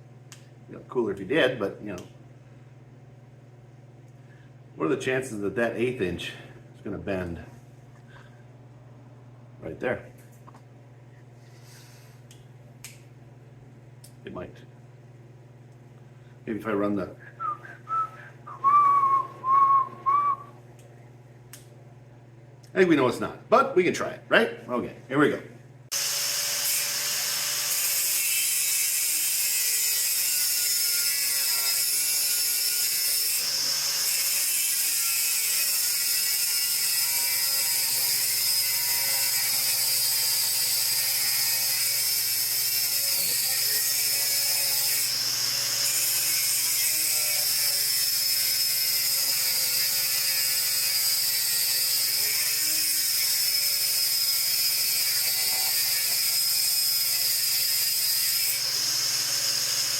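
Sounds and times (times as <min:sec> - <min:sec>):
electric power tool whining: 0:25.9 - 0:28.6, 0:30.2 - 0:36.8, 0:43.0 - 0:49.8, 0:52.0 - 0:59.9.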